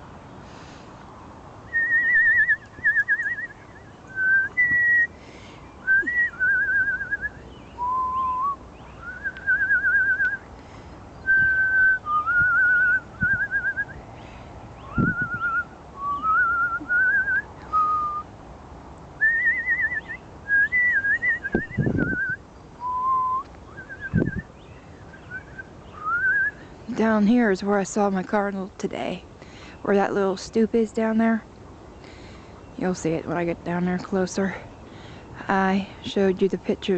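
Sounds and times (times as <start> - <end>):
person whistling a tune: 1.7 - 5.1, 5.9 - 10.4, 11.3 - 14.0, 14.9 - 18.2, 19.2 - 24.5, 25.3 - 26.6.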